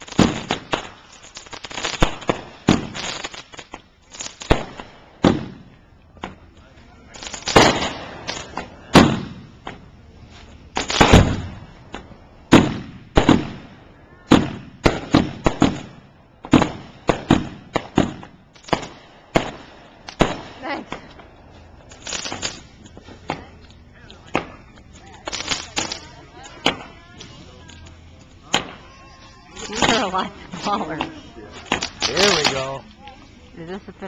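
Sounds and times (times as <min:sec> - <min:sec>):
fireworks bangs with echo: 0:00.0 - 0:10.0, 0:10.7 - 0:27.4, 0:28.3 - 0:32.9.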